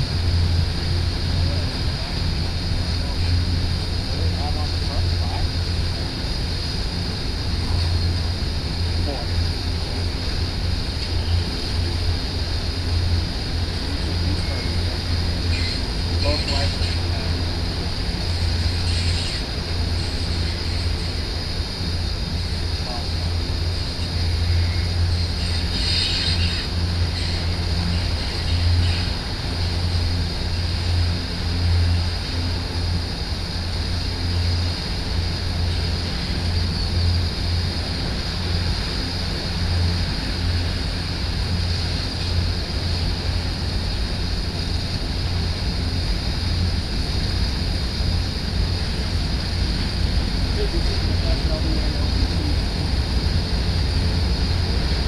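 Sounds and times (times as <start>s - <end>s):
distant train rumble: 0.0s - 55.0s
faint wheel squeal: 15.5s - 17.0s, 24.5s - 29.1s.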